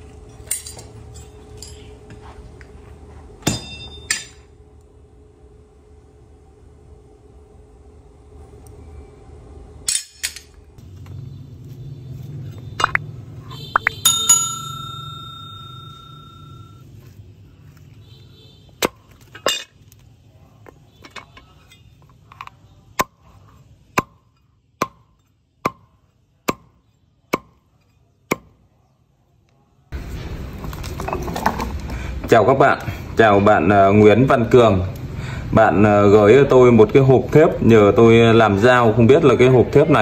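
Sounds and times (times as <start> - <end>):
low hum: 0.0 - 17.6
hammer striking metal on anvil: 3.4 - 4.5.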